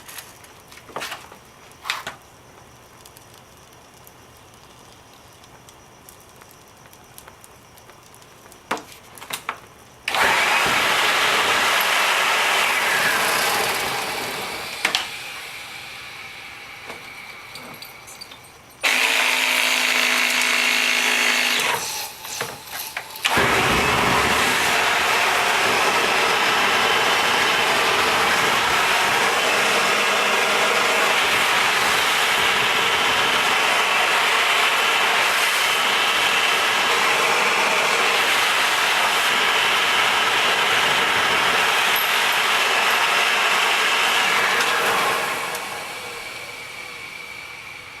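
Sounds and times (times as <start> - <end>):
humming and crackling: 0.0 - 47.9
jet engine rushing roar: 21.8 - 48.0.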